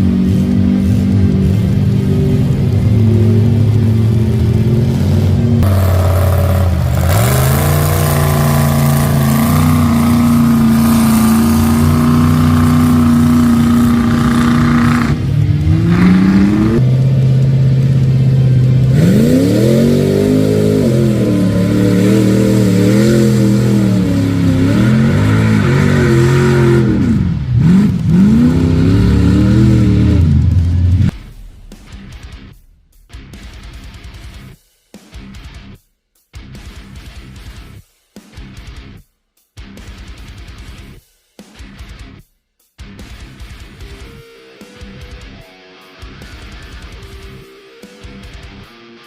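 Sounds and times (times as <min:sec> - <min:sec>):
truck engine revving hard: 0:00.0 - 0:31.5.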